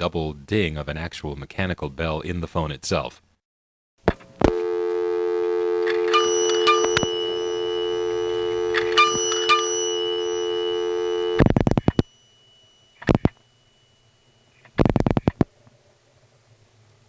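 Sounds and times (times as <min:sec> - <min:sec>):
telephone dial tone: 0:04.4 - 0:12.2
payphone bell dinging: 0:05.8 - 0:14.8.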